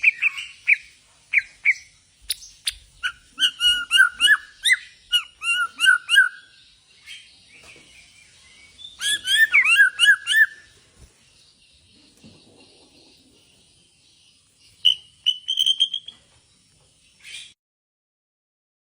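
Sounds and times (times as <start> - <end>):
bird singing whistled notes: 0.0 - 10.8, 14.3 - 16.3.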